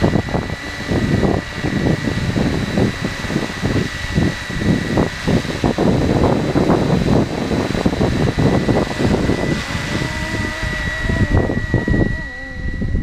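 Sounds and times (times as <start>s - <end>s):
gusty wind buffeting microphone: 0.0s - 13.0s
rc helicopter high whine: 0.0s - 13.0s.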